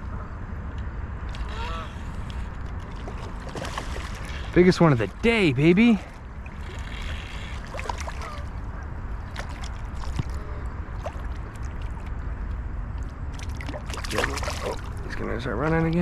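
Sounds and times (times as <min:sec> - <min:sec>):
small splashes: 0:02.6 - 0:16.0
river water rushing: 0:02.8 - 0:12.0.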